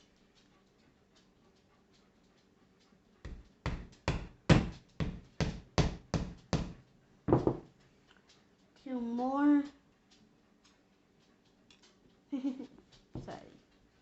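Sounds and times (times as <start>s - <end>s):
hammer driving nail into wood: 3.7s - 6.8s.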